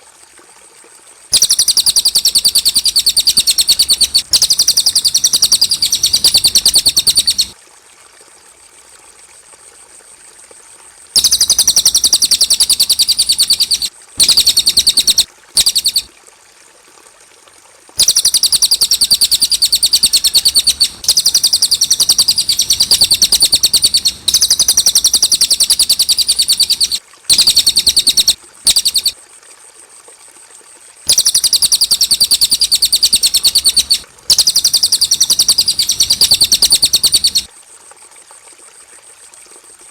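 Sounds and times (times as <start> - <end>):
songbird chattering: 1.4 - 7.6, 11.2 - 16.1, 18.0 - 29.2, 31.1 - 37.5.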